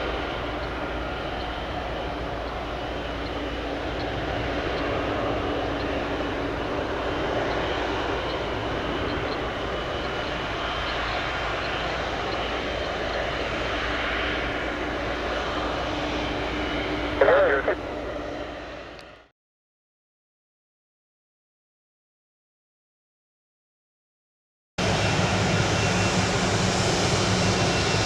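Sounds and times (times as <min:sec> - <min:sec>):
jet engines rushing: 0:00.0 - 0:19.0, 0:24.8 - 0:28.0.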